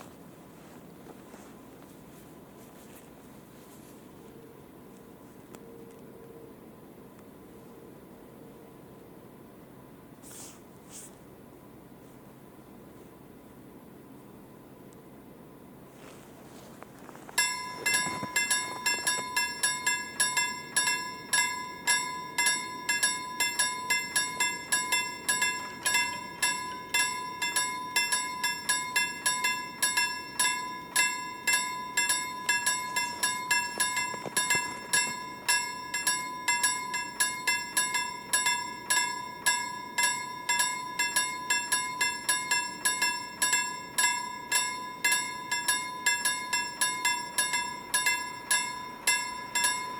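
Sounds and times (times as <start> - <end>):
level crossing bell dinging: 17.4 - 49.9.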